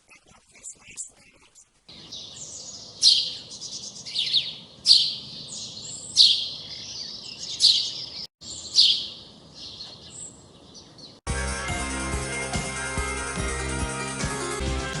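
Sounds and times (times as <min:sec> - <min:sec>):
songbird chirping: 0:00.1 - 0:11.2
music: 0:11.3 - 0:15.0.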